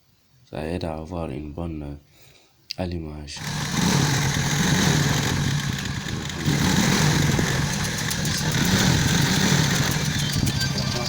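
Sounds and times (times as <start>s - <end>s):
motorcycle engine idling: 3.4s - 11.0s.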